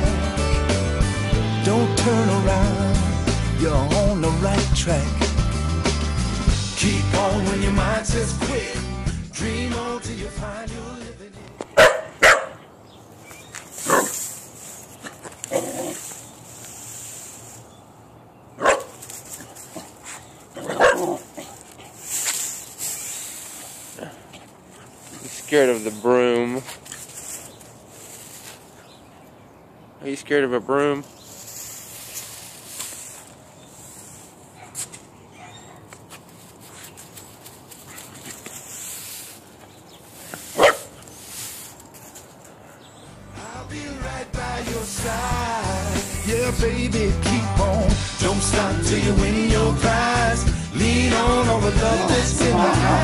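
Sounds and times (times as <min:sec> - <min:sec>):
dog barking: 0:11.7 - 0:12.7, 0:13.8 - 0:14.2, 0:18.6 - 0:19.0, 0:20.6 - 0:21.6, 0:34.6 - 0:35.9, 0:40.5 - 0:41.0
short hiss: 0:16.0 - 0:17.6, 0:22.0 - 0:24.0, 0:38.5 - 0:39.5, 0:40.1 - 0:41.9.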